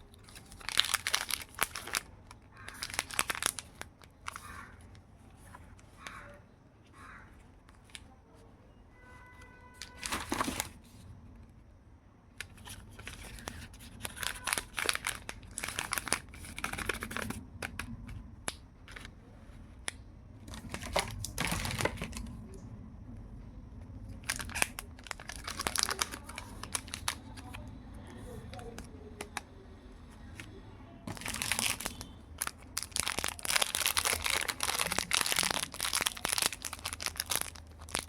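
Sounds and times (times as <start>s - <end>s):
wrappers crinkling and tearing: 0.0s - 4.9s, 9.8s - 10.8s, 12.4s - 17.4s, 20.5s - 22.3s, 24.2s - 27.6s, 31.1s - 38.0s.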